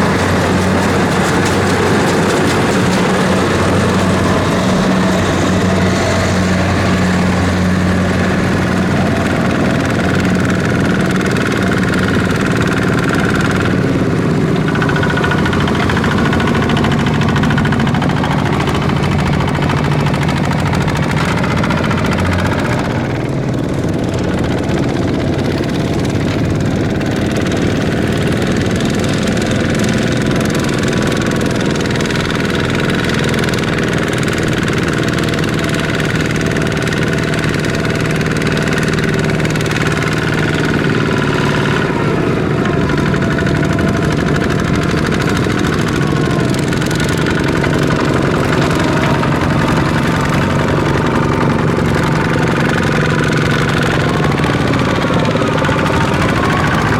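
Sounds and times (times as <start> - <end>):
diesel tractor engine clattering: 0.0 - 56.9.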